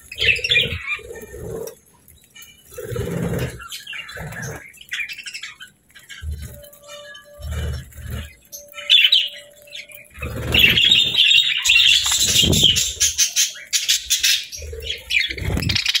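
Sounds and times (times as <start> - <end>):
budgerigars chirping and chattering: 0.0 - 16.0
low wing fluttering: 12.0 - 13.1, 14.2 - 16.0.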